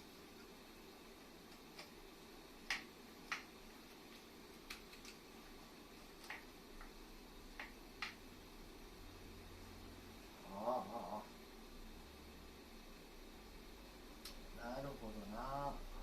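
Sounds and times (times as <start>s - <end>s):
hand tools clicking and tapping: 4.7s - 5.2s.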